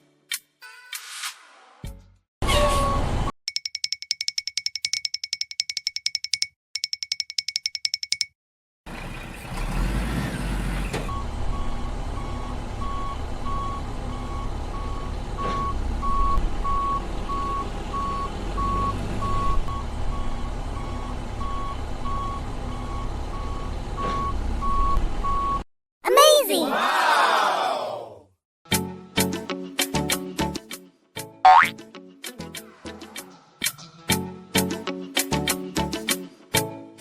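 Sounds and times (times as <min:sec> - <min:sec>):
vehicle engine rumbling: 0:08.9 - 0:25.3.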